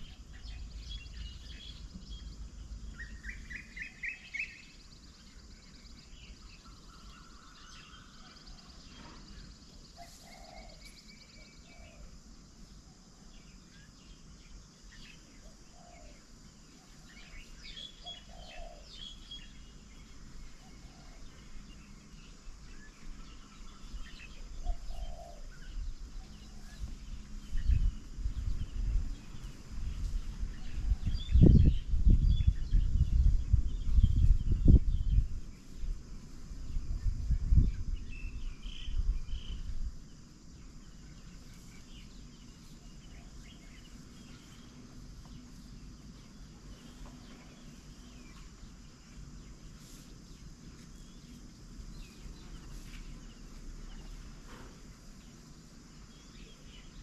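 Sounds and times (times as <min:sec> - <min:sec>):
birds chirping and calling: 0:00.0 - 0:12.2, 0:13.3 - 0:35.6
faint outdoor hiss: 0:00.0 - 0:57.0.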